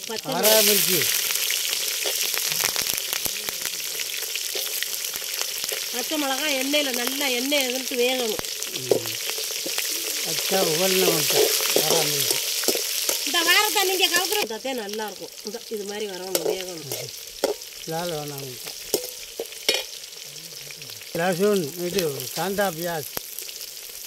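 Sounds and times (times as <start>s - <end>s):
chillies sizzling and popping in oil: 0.0s - 24.0s
metal ladle scraping pan: 8.9s - 13.5s, 16.3s - 17.7s, 18.6s - 20.0s.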